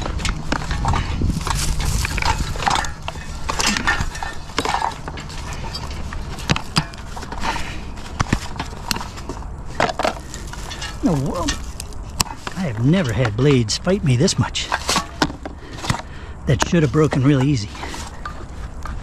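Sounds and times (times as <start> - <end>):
fan blades being bent by hand: 0.0 - 19.0
knocking and scraping: 0.0 - 19.0.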